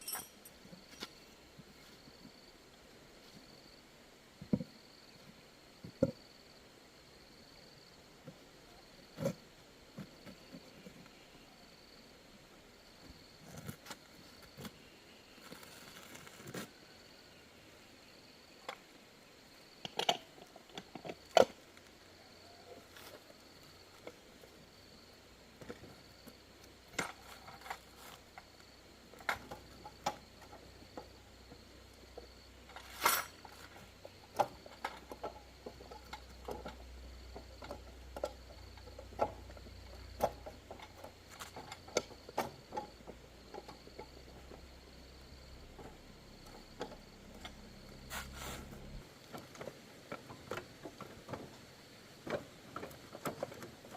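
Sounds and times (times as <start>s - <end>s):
hand tools clinking and knocking: 0.0s - 1.2s, 32.2s - 44.6s.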